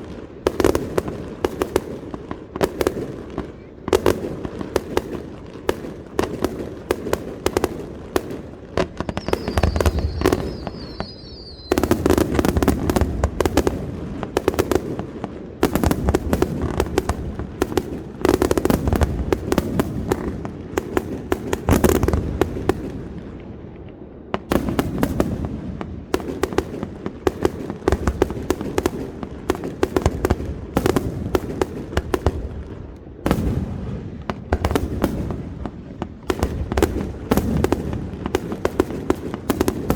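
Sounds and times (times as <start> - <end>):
deep fireworks booms: 0.0 - 39.9
fireworks cracking and banging: 0.0 - 39.9
warbling firework whistle: 8.9 - 13.0.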